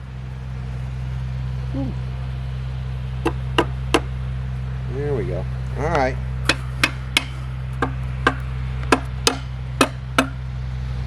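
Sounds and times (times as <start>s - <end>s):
steady low hum: 0.0s - 11.0s
tool knocking on wooden hive: 3.2s - 4.1s, 6.5s - 10.4s.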